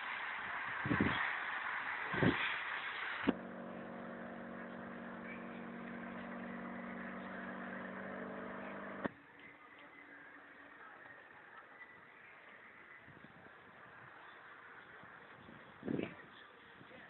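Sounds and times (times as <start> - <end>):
steady multi-tone hum: 3.3 - 9.1
tram rumble: 3.3 - 9.1.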